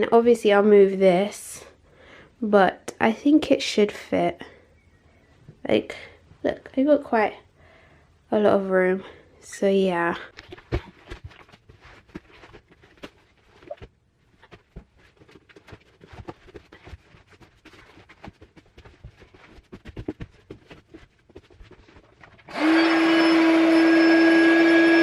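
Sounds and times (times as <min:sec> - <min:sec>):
electric air pump humming: 0:22.5 - 0:25.0.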